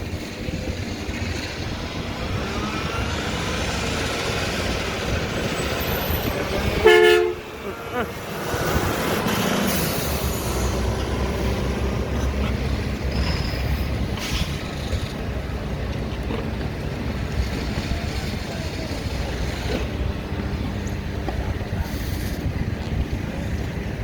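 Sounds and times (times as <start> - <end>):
truck diesel engine running: 0.0 - 24.0.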